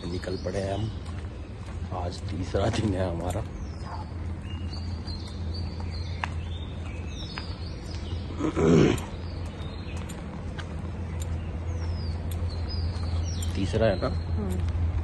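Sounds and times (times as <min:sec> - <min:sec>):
birds chirping and whistling: 0:00.0 - 0:14.9
steady low rumble: 0:00.0 - 0:15.0.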